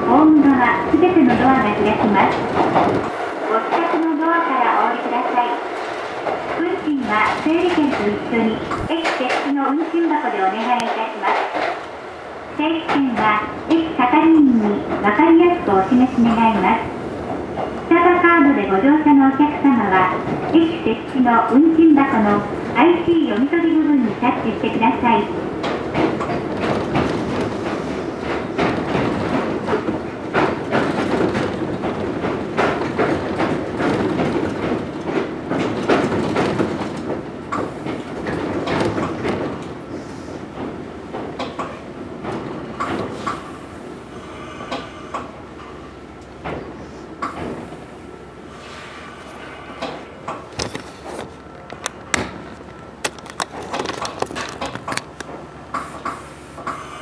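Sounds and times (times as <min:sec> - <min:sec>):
train interior rumble: 0:00.0 - 0:57.0
wheels clacking over track: 0:25.5 - 0:39.8, 0:50.3 - 0:56.2
wheels clicking and clunking: 0:49.8 - 0:56.8.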